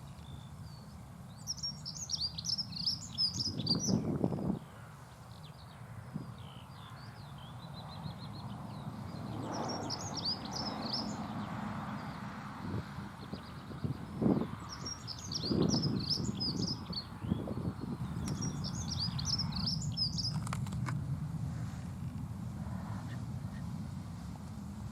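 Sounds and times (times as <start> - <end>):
bird warbling song: 0.1 - 20.8
steady low rumble: 16.8 - 24.9.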